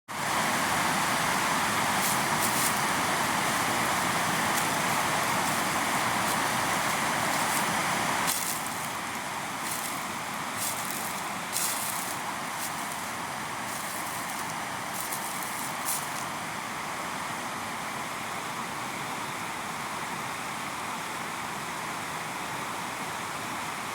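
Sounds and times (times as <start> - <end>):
river water rushing: 0.1 - 23.9
small splashes and crackles: 4.5 - 16.3.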